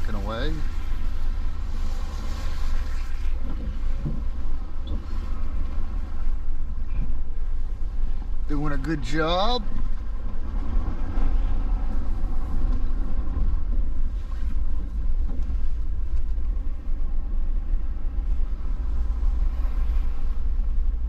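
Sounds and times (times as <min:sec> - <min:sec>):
truck engine and road rumble: 0:00.0 - 0:21.0.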